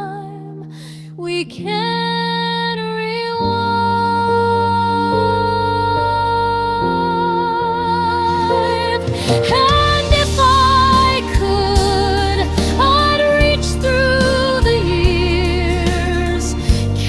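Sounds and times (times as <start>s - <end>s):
low slow chords: 5.1s - 17.0s.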